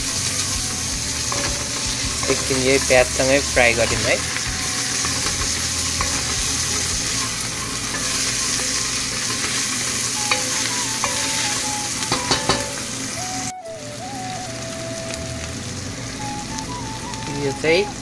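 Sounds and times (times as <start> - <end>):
onions sizzling in hot oil: 0.0 - 18.0
wooden spatula knocking on pot: 12.1 - 12.8.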